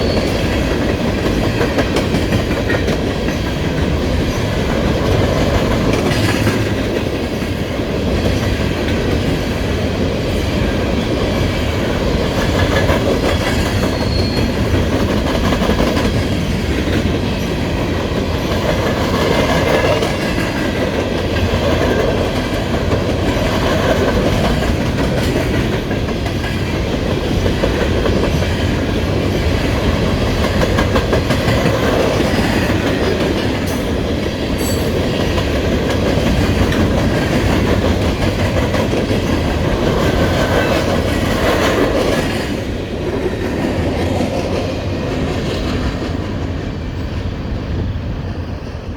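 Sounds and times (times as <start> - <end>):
freight train rumbling past: 0.0 - 48.9
wheels clicking over rail joints: 0.1 - 9.5.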